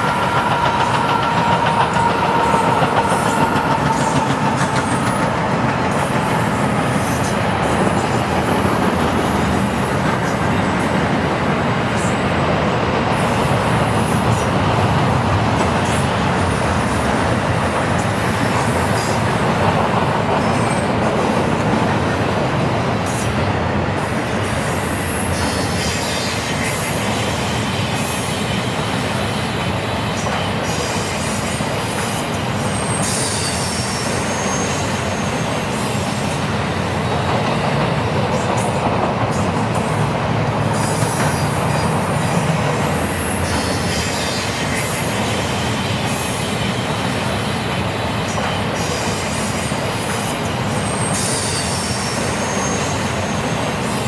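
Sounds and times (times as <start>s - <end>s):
freight train wheels rumbling: 0.0s - 54.0s
faint wheel squeal: 32.6s - 36.2s, 50.2s - 54.0s.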